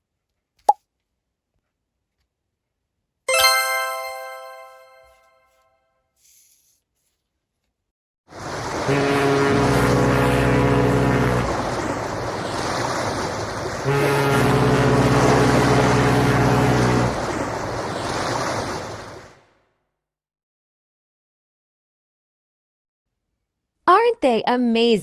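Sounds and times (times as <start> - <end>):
sea waves washing: 8.3 - 19.4
ship's horn blasts: 8.4 - 18.0.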